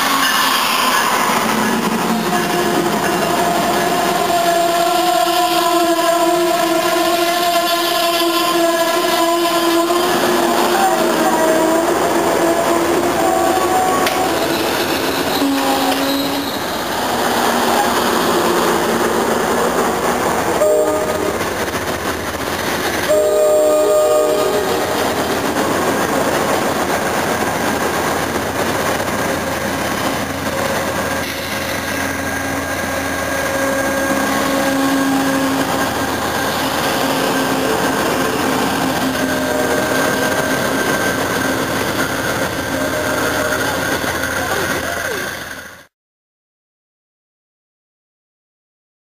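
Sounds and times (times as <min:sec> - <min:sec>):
train wheels rumbling on rail: 0:00.0 - 0:45.9
train horn: 0:02.1 - 0:17.1, 0:20.5 - 0:22.3, 0:23.0 - 0:26.6, 0:32.2 - 0:44.6.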